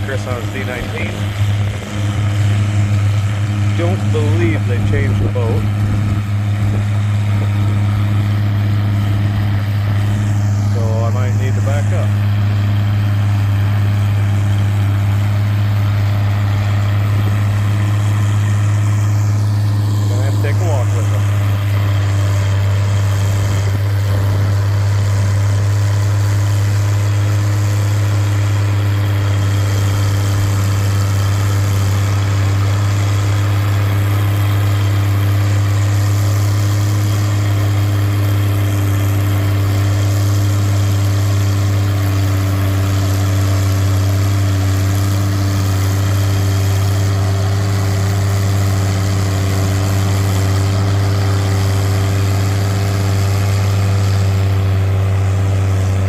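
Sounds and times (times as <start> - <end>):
engine idling: 0.0 - 56.0.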